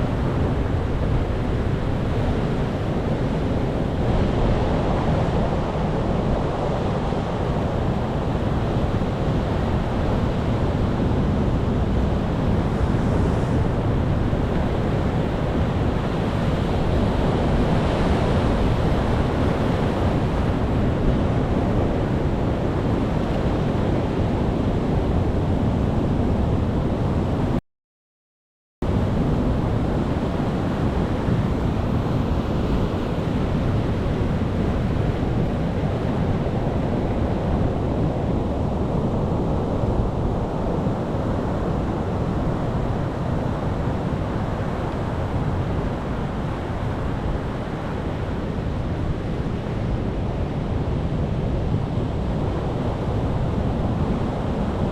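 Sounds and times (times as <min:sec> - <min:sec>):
ocean surf rushing: 0:28.9 - 0:54.9.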